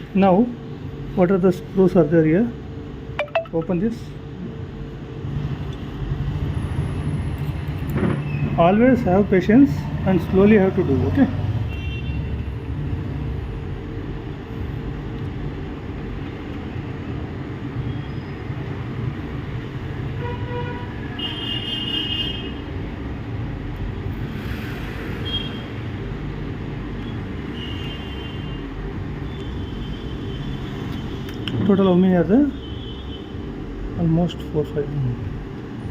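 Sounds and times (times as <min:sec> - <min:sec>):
short high-pitched tones: 0:03.2 - 0:03.8.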